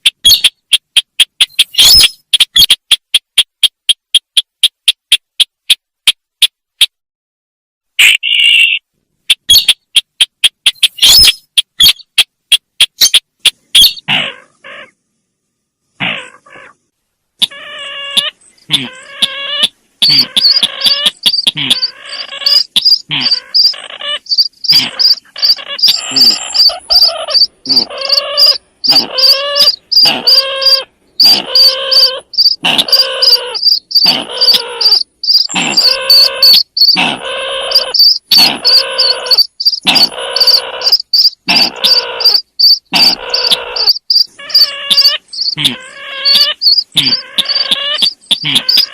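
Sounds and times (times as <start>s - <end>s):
harsh bird calls: 0.0s - 3.5s, 8.0s - 15.0s, 15.9s - 48.9s
sharp clicks: 20.4s - 21.9s.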